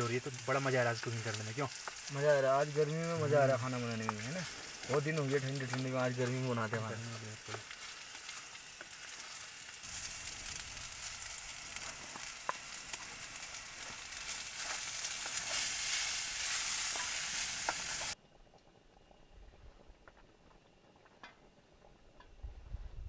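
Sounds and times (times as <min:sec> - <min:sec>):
food sizzling in hot oil: 0:00.0 - 0:18.2.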